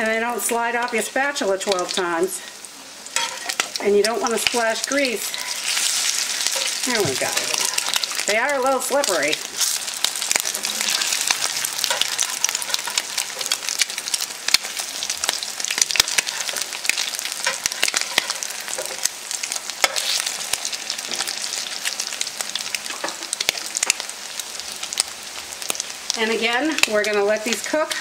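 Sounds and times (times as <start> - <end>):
patties sizzling and popping in oil: 0.0 - 28.0
metal spatula scraping a pan: 3.1 - 8.3, 9.0 - 19.1, 19.8 - 22.0.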